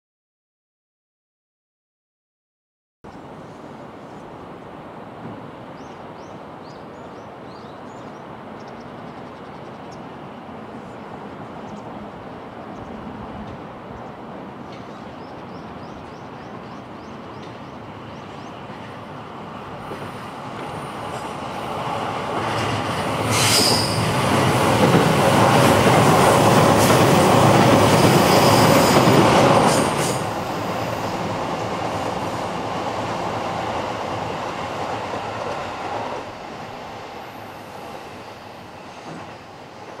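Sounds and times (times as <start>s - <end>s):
electric train passing: 3.4s - 40.0s
train wheel noise: 17.3s - 40.0s
high screech: 23.3s - 24.2s.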